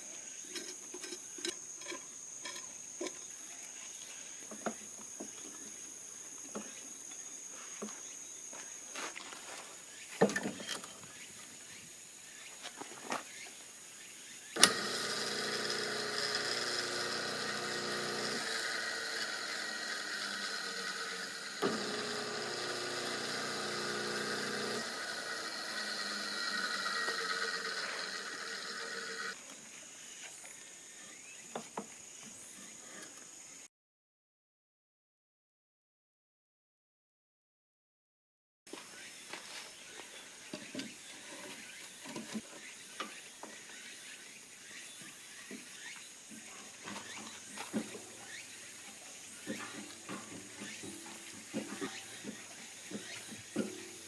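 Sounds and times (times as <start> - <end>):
electric motor whining: 14.6 - 29.4.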